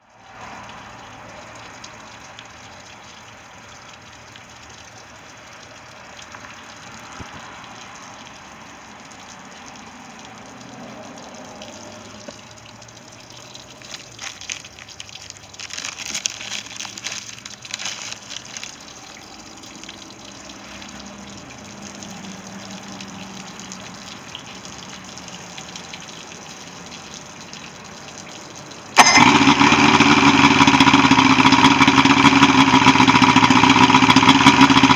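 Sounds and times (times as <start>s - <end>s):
water running: 0.2s - 34.9s
outboard motor running: 15.6s - 19.3s, 29.0s - 34.9s.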